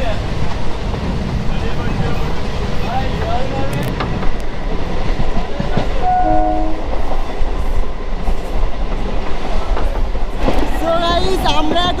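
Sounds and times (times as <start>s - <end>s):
train rattle: 0.0s - 12.0s
train horn blast: 6.0s - 7.0s.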